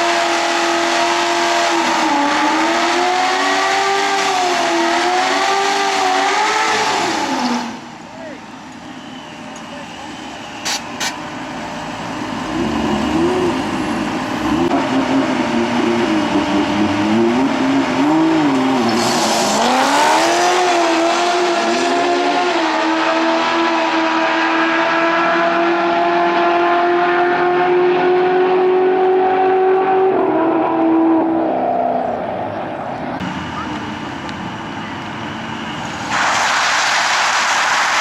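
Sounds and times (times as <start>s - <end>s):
car engine revving: 0.0s - 8.0s, 11.3s - 33.7s.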